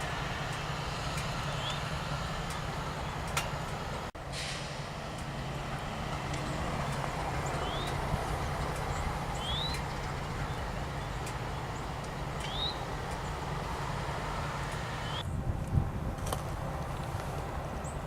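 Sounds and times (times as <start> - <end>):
diesel locomotive engines rumbling: 0.0 - 18.0
bird rising chirp: 7.4 - 8.0, 8.9 - 11.8, 12.4 - 12.9.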